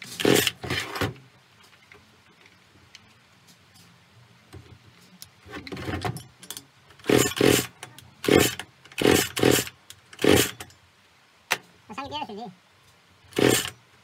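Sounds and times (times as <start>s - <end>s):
recoil starter cord whirr: 0.0s - 1.0s, 7.0s - 10.6s, 13.3s - 13.8s
chainsaw engine turning over: 0.0s - 1.2s, 7.0s - 10.7s, 13.3s - 13.8s.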